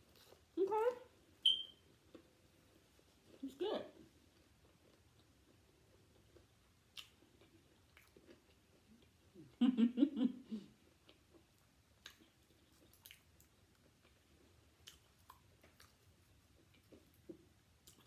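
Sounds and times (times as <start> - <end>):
person chewing: 4.2 - 9.4, 10.8 - 18.0.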